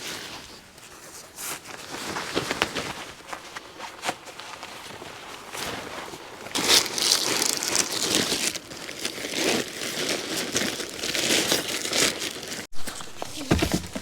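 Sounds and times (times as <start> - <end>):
plastic bag crinkling: 6.3 - 14.0.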